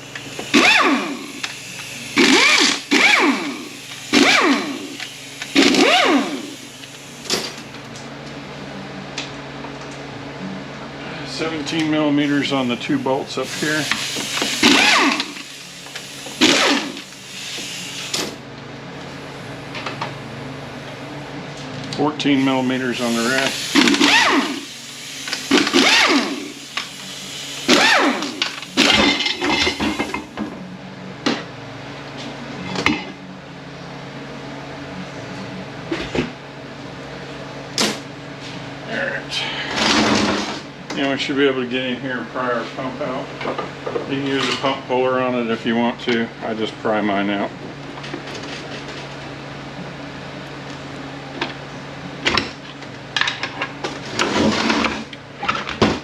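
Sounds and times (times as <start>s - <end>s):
power tool whining: 0.0s - 7.8s, 12.6s - 18.4s, 23.0s - 30.2s
steady low hum: 0.0s - 56.0s.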